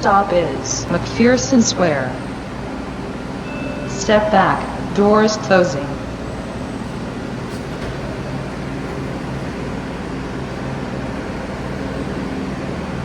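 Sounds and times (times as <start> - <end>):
subway train humming: 0.0 - 13.0.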